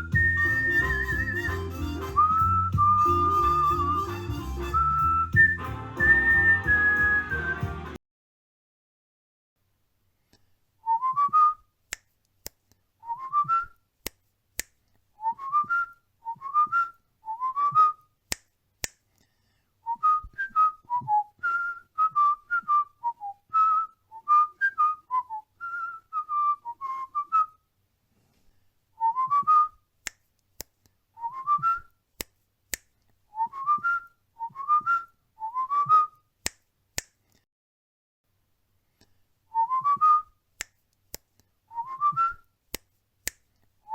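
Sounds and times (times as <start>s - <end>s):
cockatiel whistling a tune: 0.0s - 7.8s, 33.4s - 36.1s, 41.7s - 42.4s.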